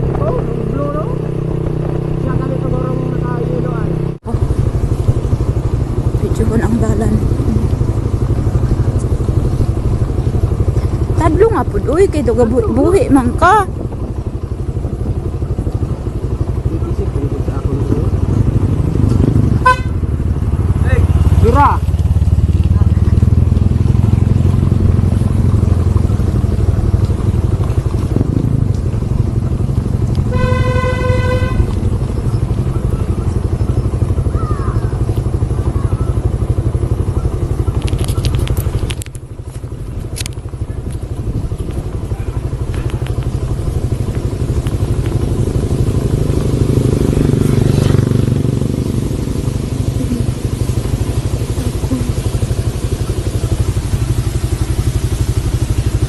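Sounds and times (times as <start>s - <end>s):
motorcycle engine running: 0.0s - 56.0s
horn honking: 19.5s - 20.2s, 30.2s - 32.1s.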